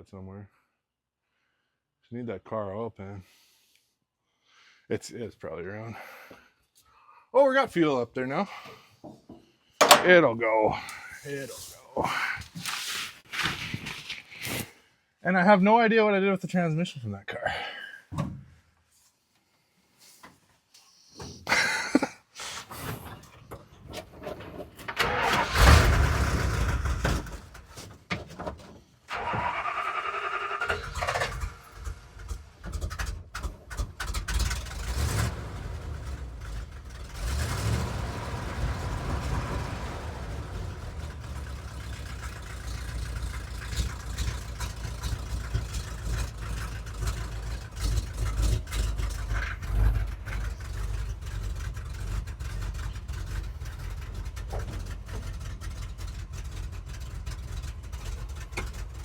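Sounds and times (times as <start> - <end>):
engine cranking and starting: 23.8 - 27.8, 29.1 - 59.0.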